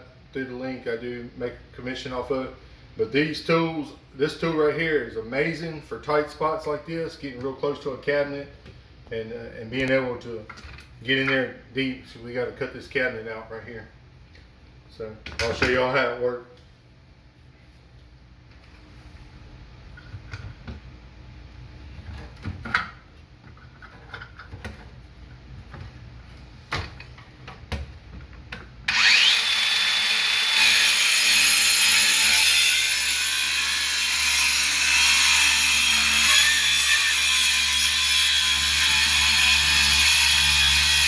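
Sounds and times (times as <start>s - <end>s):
circular saw cutting wood: 28.9s - 41.0s.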